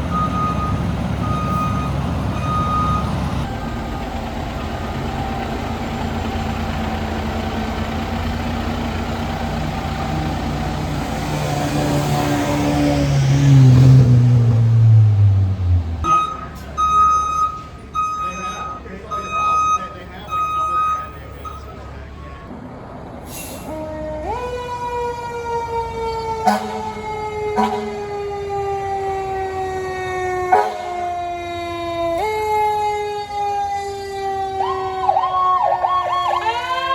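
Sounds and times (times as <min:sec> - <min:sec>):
fire truck diesel engine revving: 0:00.0 - 0:17.1
fire truck siren wailing: 0:00.0 - 0:22.4, 0:23.6 - 0:36.9.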